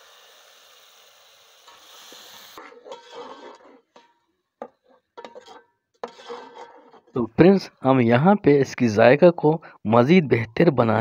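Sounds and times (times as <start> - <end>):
puree sizzling in hot oil: 0.0 - 4.1
ladle stirring and scraping pot: 1.7 - 7.3.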